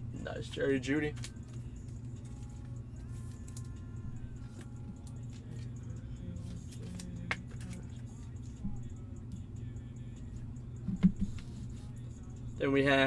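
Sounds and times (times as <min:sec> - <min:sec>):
faint background music: 0:00.0 - 0:13.0
steady low hum: 0:00.0 - 0:13.0
trading cards being handled: 0:01.1 - 0:08.6, 0:10.9 - 0:12.0.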